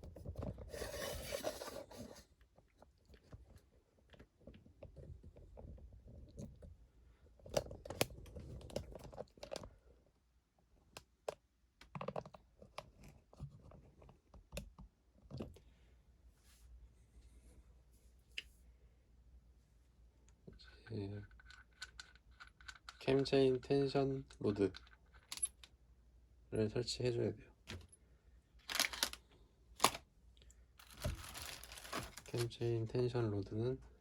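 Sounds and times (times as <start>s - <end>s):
light clicks taps and scrapes: 20.2s - 23.4s
camera handling rustle: 28.7s - 29.2s, 29.8s - 30.0s.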